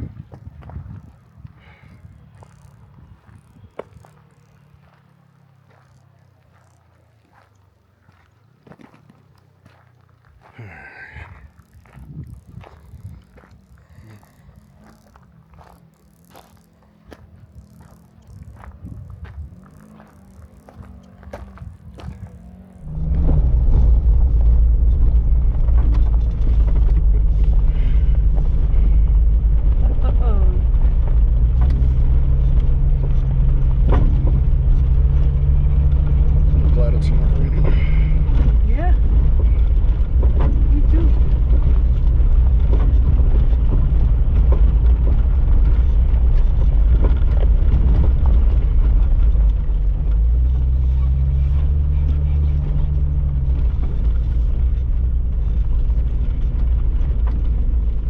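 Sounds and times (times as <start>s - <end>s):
engine and drivetrain rumble: 0.0s - 58.0s
tyre and road noise: 0.0s - 58.0s
faint knocks from rocky road: 30.6s - 58.0s.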